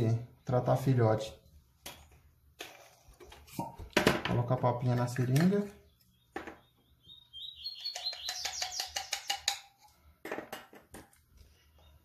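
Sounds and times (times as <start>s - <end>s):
songbird chirping: 4.9s - 9.7s.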